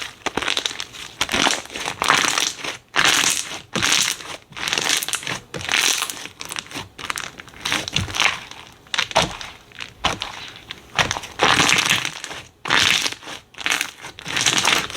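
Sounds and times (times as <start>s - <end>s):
slime squeezed by hand crackling: 0.0s - 14.9s.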